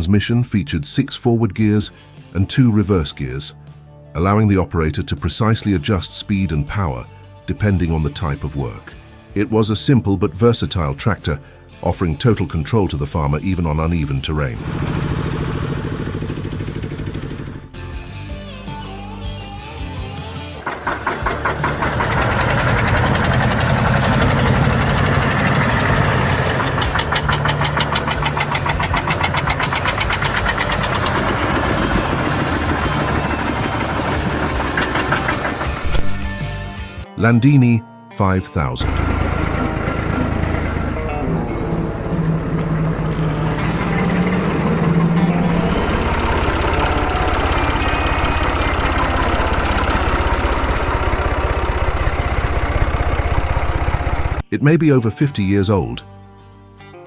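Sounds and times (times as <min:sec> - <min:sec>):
single-cylinder diesel engine knocking: 0:20.6 - 0:35.9, 0:38.9 - 0:54.4.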